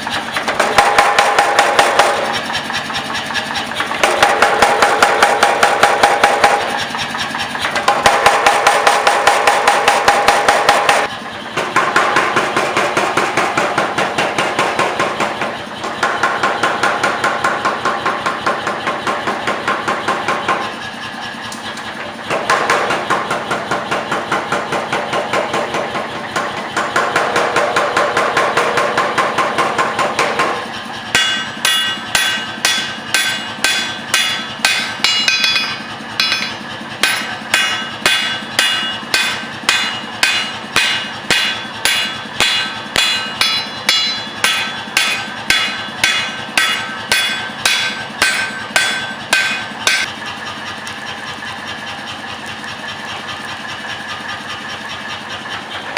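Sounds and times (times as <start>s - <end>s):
power hammer blows: 0.0s - 21.4s, 22.2s - 50.5s
ringing hammer strikes on steel: 22.3s - 50.1s.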